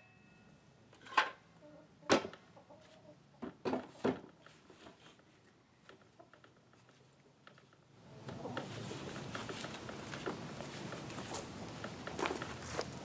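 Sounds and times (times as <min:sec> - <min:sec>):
shuffling noise: 0:04.4 - 0:05.5, 0:08.4 - 0:13.0.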